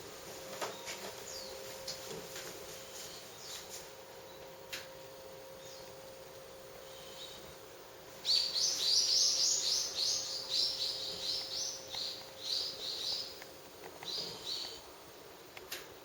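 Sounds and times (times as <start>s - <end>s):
bird chirping: 0.6s - 1.7s, 5.5s - 6.1s, 6.8s - 7.6s, 8.2s - 14.9s.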